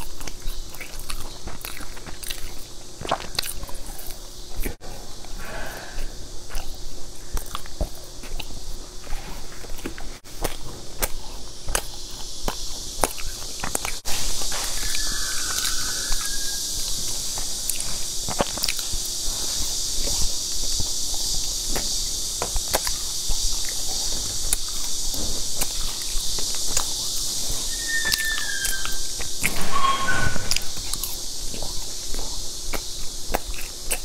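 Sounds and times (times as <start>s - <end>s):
mouth chewing with clicks and smacks: 0.0s - 5.4s, 6.0s - 14.2s, 14.8s - 29.5s, 30.5s - 34.0s
steady high hiss: 0.0s - 34.0s.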